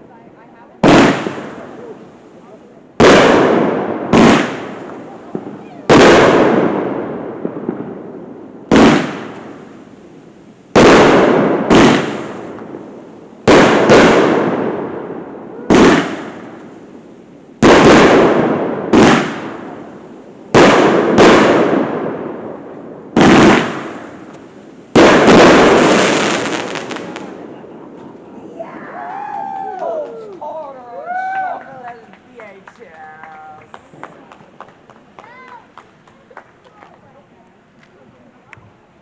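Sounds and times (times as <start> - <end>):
fireworks bangs: 0.6 - 30.3.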